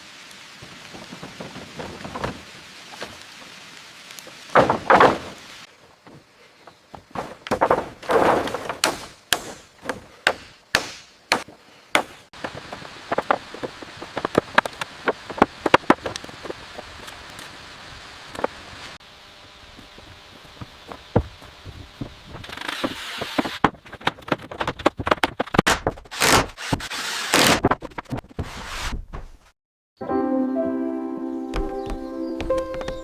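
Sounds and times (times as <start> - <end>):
steady rain-like hiss: 0.0 - 6.5, 11.7 - 22.4
thuds: 4.5 - 5.5, 6.9 - 16.1, 20.6 - 26.1
building work knocks and taps: 6.9 - 16.6, 20.6 - 26.0.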